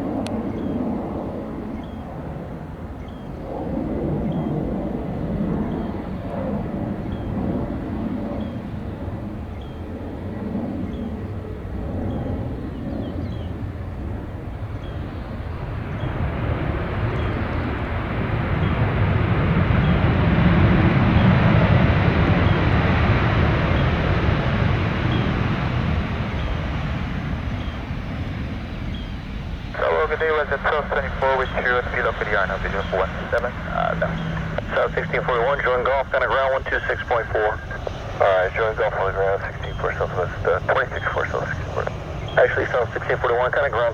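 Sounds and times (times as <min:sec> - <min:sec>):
jet engines rumbling: 0:00.0 - 0:43.9.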